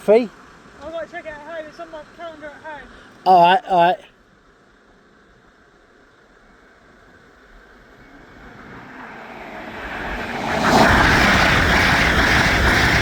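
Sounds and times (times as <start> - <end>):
train passing at speed: 6.5 - 13.0.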